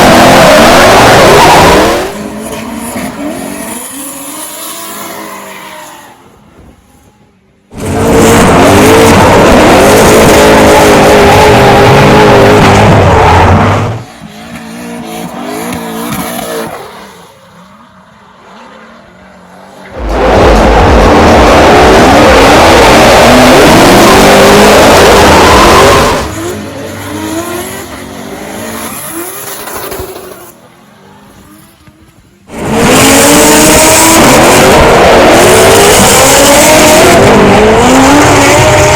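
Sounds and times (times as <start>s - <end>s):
car engine revving hard: 0.0s - 3.8s, 7.7s - 14.0s, 20.0s - 29.6s, 32.5s - 38.9s.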